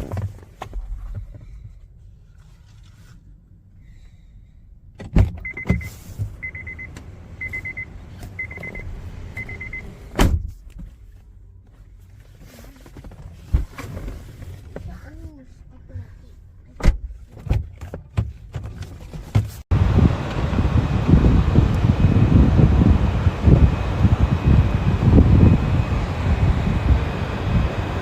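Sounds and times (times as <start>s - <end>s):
low steady car rumble: 0.0s - 28.0s
short electronic beeps: 5.4s - 9.9s.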